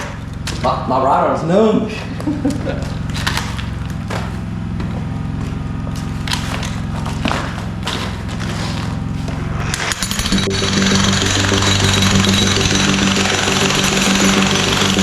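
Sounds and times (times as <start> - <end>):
motor humming: 2.1 - 15.0
jackhammer hammering on concrete: 9.7 - 15.0
knocks and clatters: 9.8 - 15.0.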